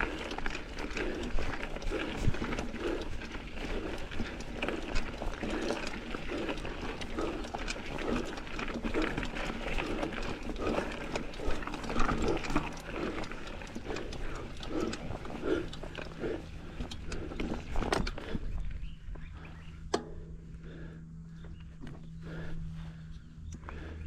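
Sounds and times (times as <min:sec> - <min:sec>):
wind rumble on microphone: 0:00.0 - 0:04.9, 0:16.8 - 0:19.5
bike rattling and knocking: 0:00.0 - 0:24.0
rider breathing heavily: 0:00.0 - 0:24.0.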